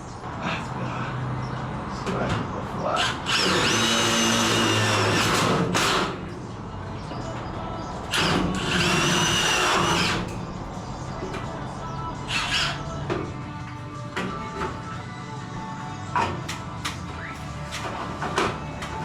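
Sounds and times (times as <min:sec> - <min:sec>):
power drill motor whirring: 0:03.0 - 0:06.1, 0:08.1 - 0:10.2.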